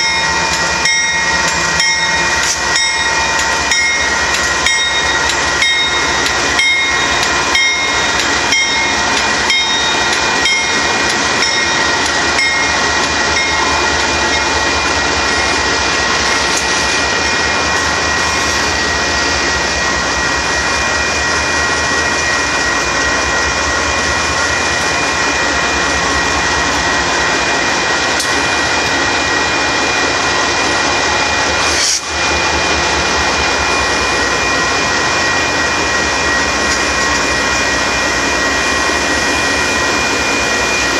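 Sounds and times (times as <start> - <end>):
train wheels clicking over rail joints: 0.0 - 29.5
high squeal of train wheels: 0.0 - 40.9
rushing noise of train cars: 0.0 - 40.9.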